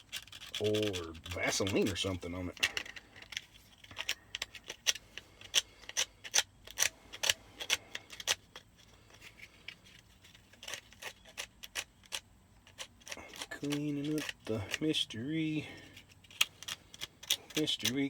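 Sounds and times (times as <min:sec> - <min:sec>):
sandpaper scratching metal: 0:00.0 - 0:02.2.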